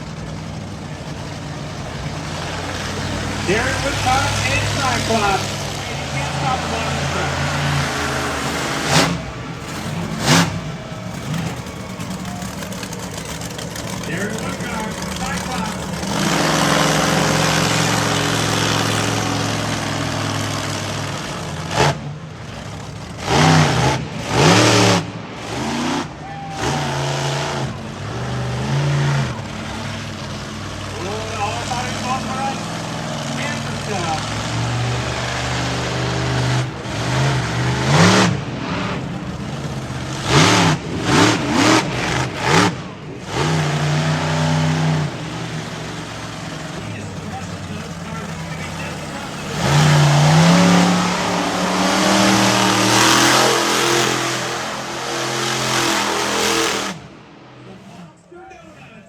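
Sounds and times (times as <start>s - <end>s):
monster truck engine revving: 0.0s - 58.5s.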